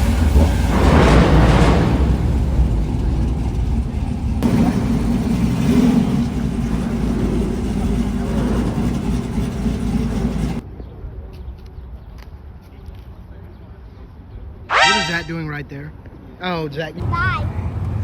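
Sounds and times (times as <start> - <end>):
car engine rumbling: 0.0 - 10.6.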